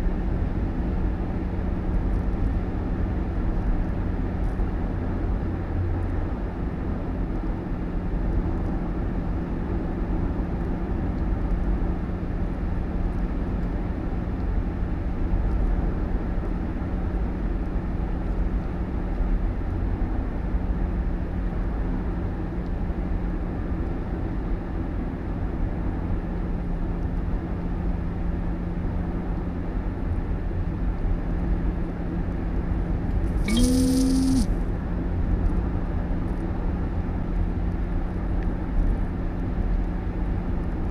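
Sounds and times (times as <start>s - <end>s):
vehicle engine and road rumble: 0.0s - 33.5s, 34.4s - 40.9s
brief pitched hissing sound: 33.4s - 34.5s.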